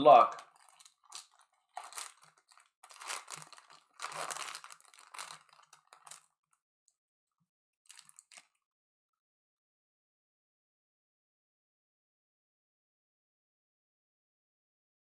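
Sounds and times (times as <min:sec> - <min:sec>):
wrapper crinkling and rustling: 0:00.3 - 0:06.3, 0:07.9 - 0:08.6.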